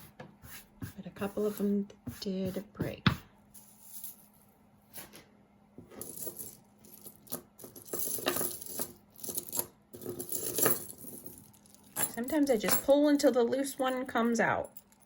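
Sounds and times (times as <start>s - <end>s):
jewelry clinking and rattling: 3.6s - 4.4s, 5.9s - 15.0s.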